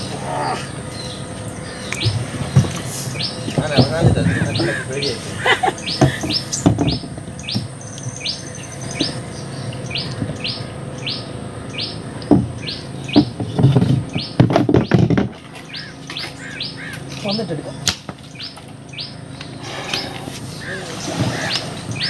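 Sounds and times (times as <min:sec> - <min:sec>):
knocks and thuds of gear in boat: 0:02.0 - 0:07.7, 0:12.2 - 0:16.4, 0:20.6 - 0:22.0.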